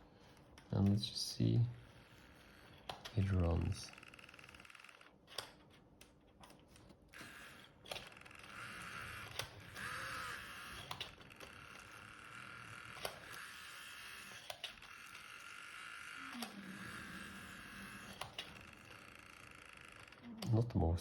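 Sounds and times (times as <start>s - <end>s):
model train motor whirring: 1.8s - 3.1s, 3.9s - 5.6s, 7.1s - 20.3s.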